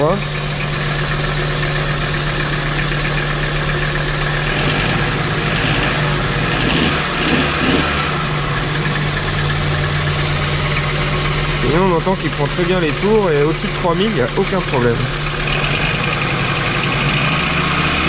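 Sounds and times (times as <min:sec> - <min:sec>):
engine idling with knock: 0:00.0 - 0:17.3.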